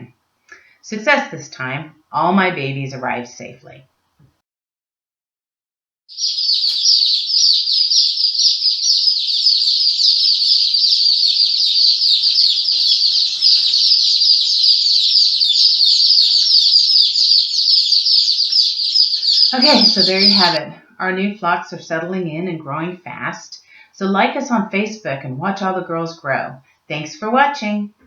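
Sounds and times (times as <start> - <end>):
chicks peeping: 6.1 - 20.8.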